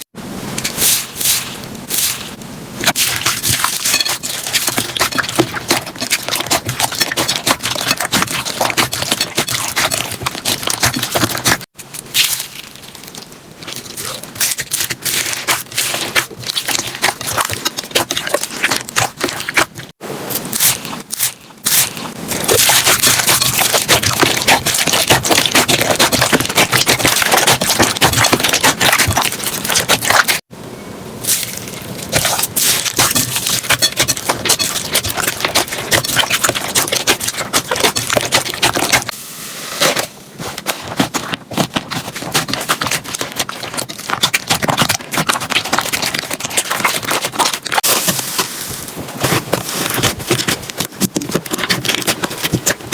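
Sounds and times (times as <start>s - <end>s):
slime crackling and crunching: 0.7s - 30.5s, 31.2s - 39.2s, 39.9s - 52.9s.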